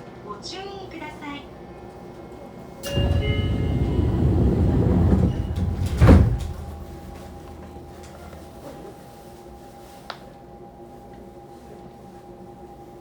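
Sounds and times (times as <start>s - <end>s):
door chime tones: 2.8s - 8.4s
doors shutting thud: 2.8s - 8.6s
train doors closing: 2.8s - 9.1s.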